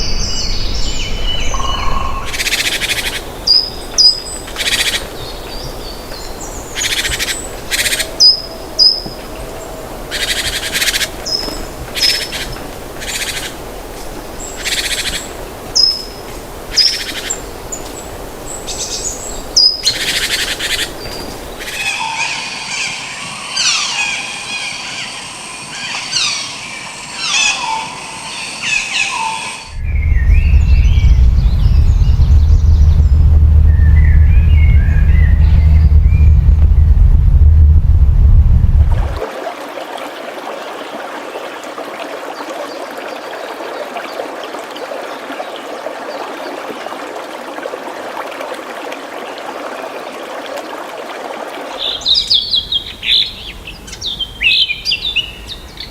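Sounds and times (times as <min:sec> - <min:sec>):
birds chirping: 0:00.0 - 0:09.2, 0:18.6 - 0:36.9
chorus of falling bird calls: 0:00.0 - 0:09.2
loud low rumble: 0:29.7 - 0:39.2.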